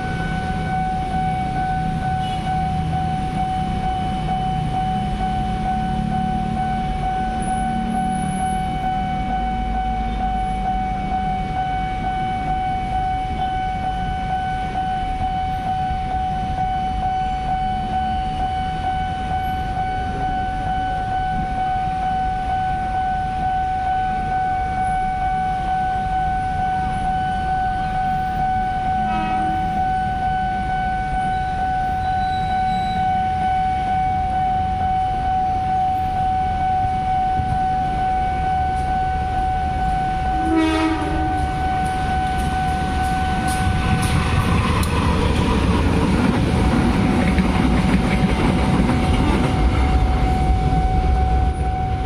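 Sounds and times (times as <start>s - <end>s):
level crossing alarm tone: 0.0s - 52.0s
train rumbling past: 38.6s - 52.0s.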